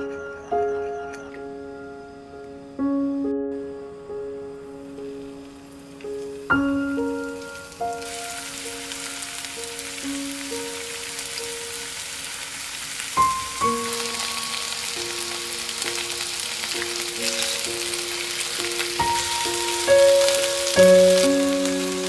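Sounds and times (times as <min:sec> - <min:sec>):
slow melodic background music: 0:00.0 - 0:22.0
meat sizzling in a frying pan: 0:06.0 - 0:22.0.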